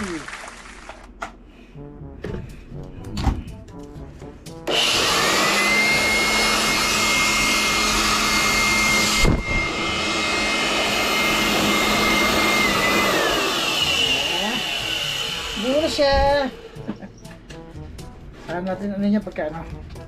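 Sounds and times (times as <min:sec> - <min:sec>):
electric blower motor whining: 0:04.6 - 0:17.1.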